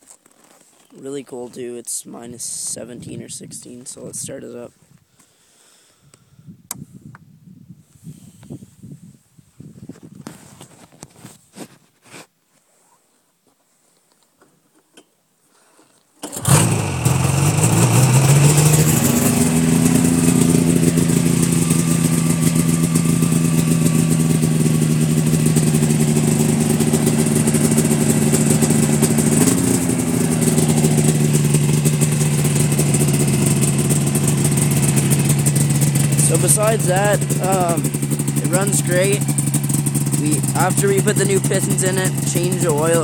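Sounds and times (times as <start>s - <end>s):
snowmobile engine starting and idling: 16.2s - 43.0s.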